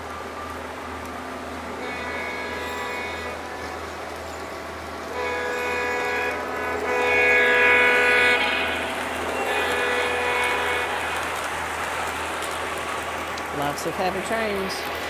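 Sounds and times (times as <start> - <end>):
locomotive air horn blasts: 1.7 - 4.0, 5.1 - 12.4.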